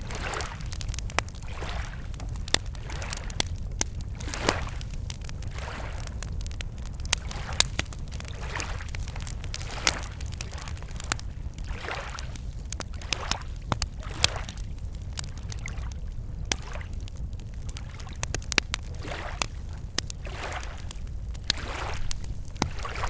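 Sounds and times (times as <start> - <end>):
small waves lapping shore: 0.0 - 0.8, 1.4 - 3.5, 4.2 - 6.1, 7.2 - 10.8, 11.7 - 14.6, 19.0 - 19.6, 20.2 - 23.0
campfire crackling and popping: 0.0 - 23.0
steady low rumble: 14.6 - 23.0.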